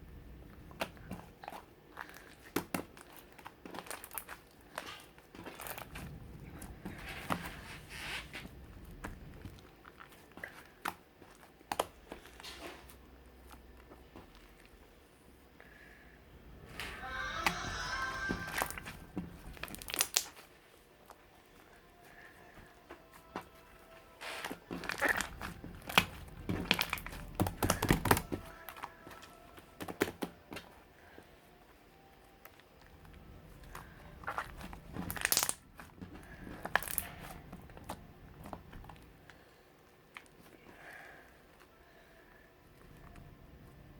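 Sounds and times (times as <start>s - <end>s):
slime squishing: 0.0s - 43.9s
slime sticky clicks and pops: 19.6s - 20.4s.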